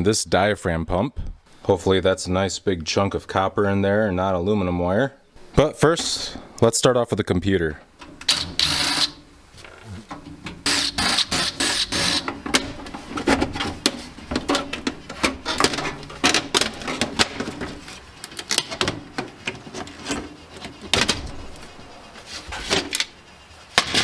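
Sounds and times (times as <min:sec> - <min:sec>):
tools and metal parts rattling: 0:07.9 - 0:24.0.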